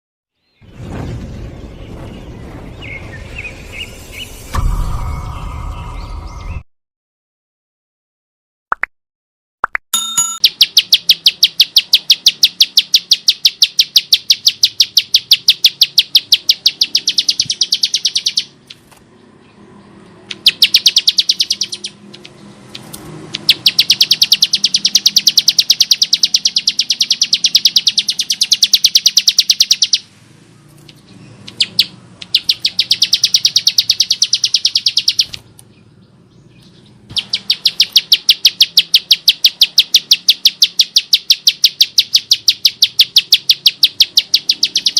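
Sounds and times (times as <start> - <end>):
bird rasping repeated notes: 10.4 - 44.9.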